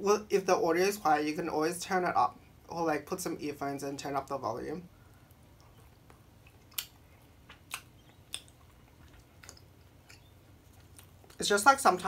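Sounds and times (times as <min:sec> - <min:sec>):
sharp wet mouth clicks: 0:05.6 - 0:10.3
chewing and mouth sounds: 0:05.6 - 0:11.4.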